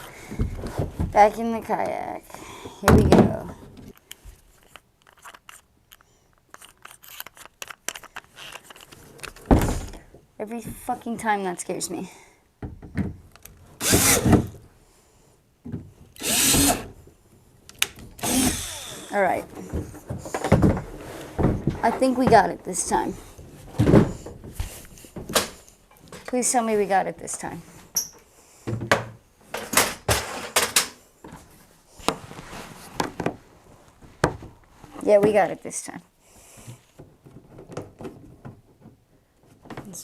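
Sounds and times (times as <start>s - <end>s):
cordless drill motor whine: 16.2s - 16.9s, 18.2s - 19.1s.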